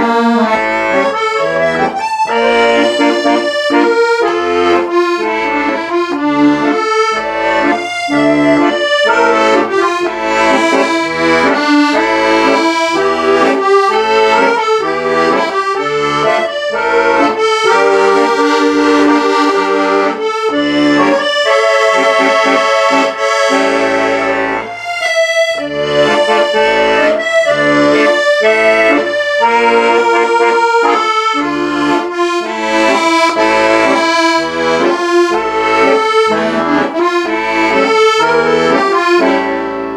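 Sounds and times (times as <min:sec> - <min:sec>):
accordion music: 0:00.0 - 0:39.9.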